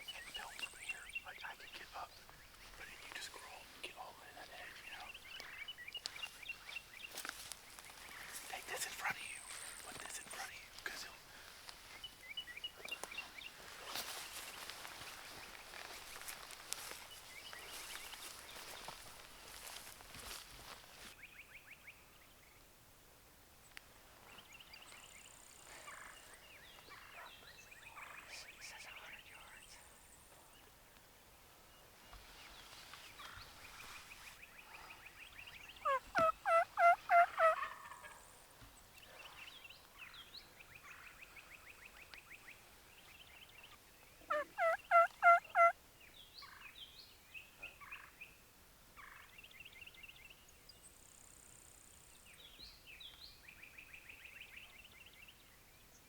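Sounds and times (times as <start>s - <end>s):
turkey gobbling: 35.8s - 38.2s, 44.3s - 45.8s.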